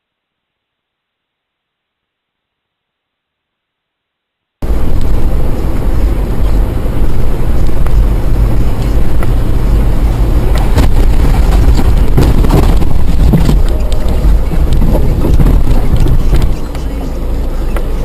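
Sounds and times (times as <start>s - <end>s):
wind on microphone: 4.6s - 16.7s
road and engine rumble: 4.6s - 18.0s.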